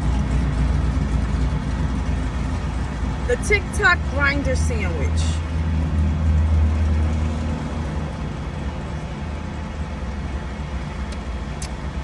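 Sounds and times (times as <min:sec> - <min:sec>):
car engine rumble from inside: 0:00.0 - 0:12.0
faint clicks: 0:11.1 - 0:11.8.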